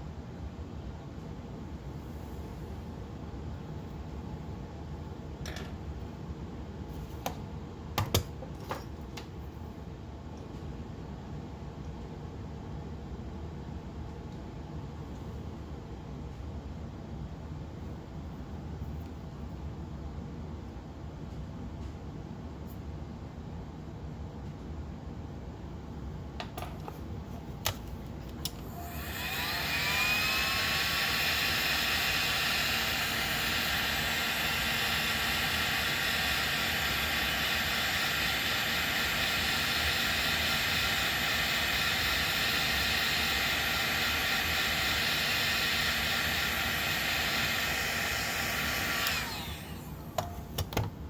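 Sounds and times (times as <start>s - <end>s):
heat gun fan whining and hissing: 0.0s - 12.4s, 25.4s - 51.0s.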